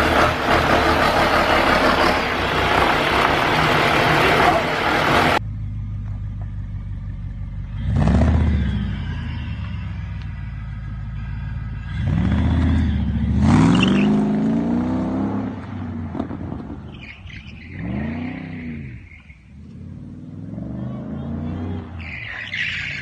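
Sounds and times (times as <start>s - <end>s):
motorcycle engine idling and revving: 0.0s - 23.0s.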